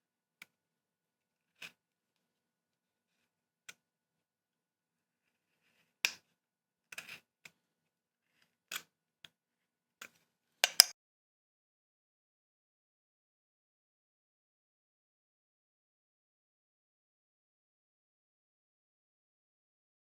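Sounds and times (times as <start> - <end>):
carving tools tapping wood: 10.6 - 10.9.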